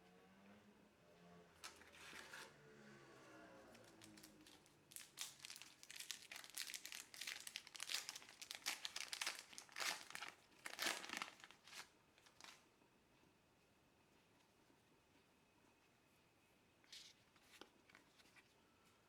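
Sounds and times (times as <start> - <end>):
wrapper crinkling and tearing: 3.8 - 12.6.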